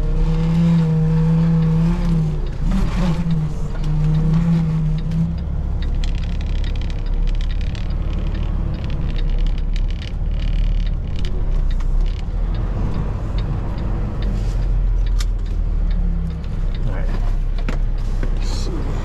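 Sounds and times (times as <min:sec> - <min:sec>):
diesel truck engine rumbling: 0:00.0 - 0:19.0
light clicks and rattles: 0:05.0 - 0:12.6.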